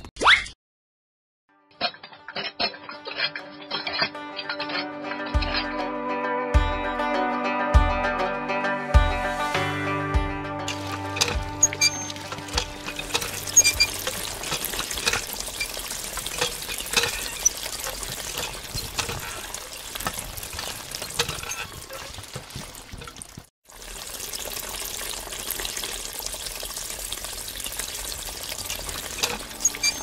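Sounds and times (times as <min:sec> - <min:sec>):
water stream splashing: 0:10.7 - 0:30.0.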